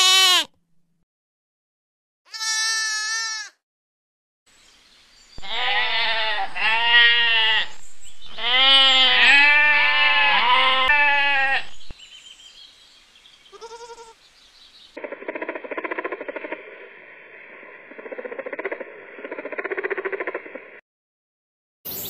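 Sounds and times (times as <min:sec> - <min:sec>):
goats bleating: 0:00.0 - 0:00.5, 0:02.3 - 0:03.6, 0:05.4 - 0:11.9, 0:13.5 - 0:14.2.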